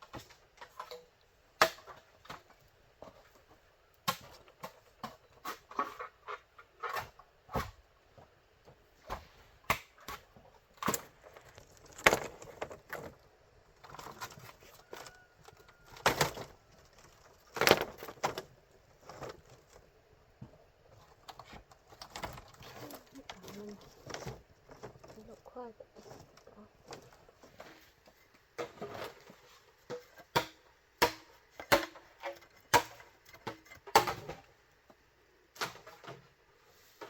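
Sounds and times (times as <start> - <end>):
bamboo knocking and cracking: 0.0 - 3.2, 9.1 - 13.2, 13.8 - 18.5, 29.9 - 34.5.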